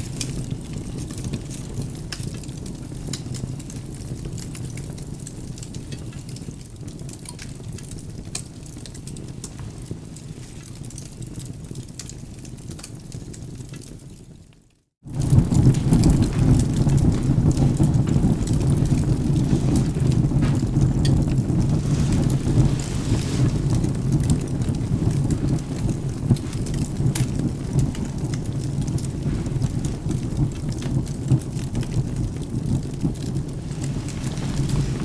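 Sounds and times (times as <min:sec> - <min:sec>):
rain: 0:00.0 - 0:35.0
wood fire crackling: 0:00.0 - 0:35.0
rolling thunder rumble: 0:15.1 - 0:35.0.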